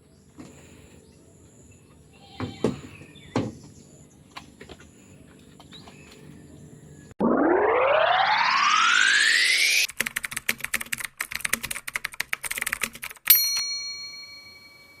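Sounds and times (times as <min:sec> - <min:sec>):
rising swoosh: 0:07.2 - 0:09.9
rapid typing clicks: 0:09.9 - 0:13.3
bell ding: 0:13.3 - 0:15.0.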